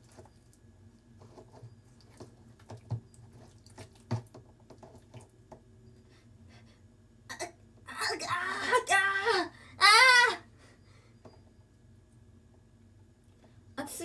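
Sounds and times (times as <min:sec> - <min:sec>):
dough kneaded in a bowl: 0:00.0 - 0:07.1.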